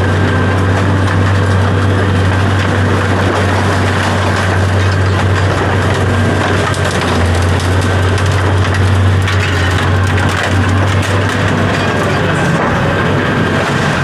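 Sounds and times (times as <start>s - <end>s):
clattering and crunching: 0.0s - 14.0s
large engine humming: 0.0s - 14.0s.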